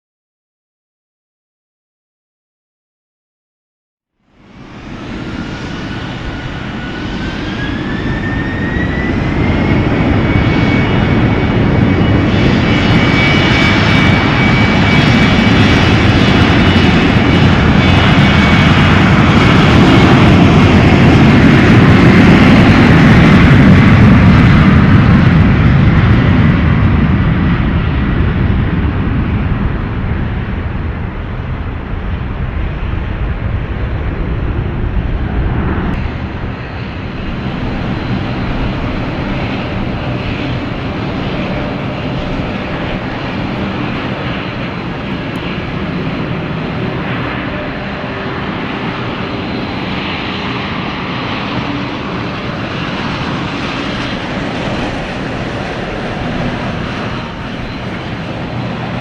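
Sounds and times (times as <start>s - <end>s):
airliner engines running: 4.2s - 59.0s
thin engine whine: 34.5s - 59.0s.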